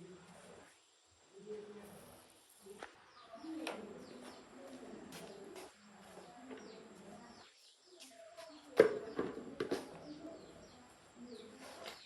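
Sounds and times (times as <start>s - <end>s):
birds chirping: 2.7s - 12.0s.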